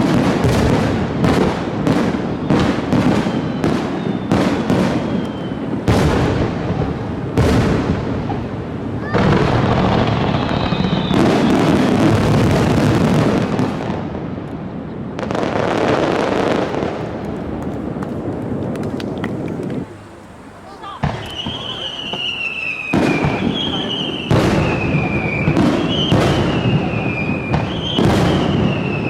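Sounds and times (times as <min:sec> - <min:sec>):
fireworks whistles: 0:00.0 - 0:14.0, 0:20.7 - 0:29.0
fireworks bursts and crackle: 0:00.0 - 0:29.0.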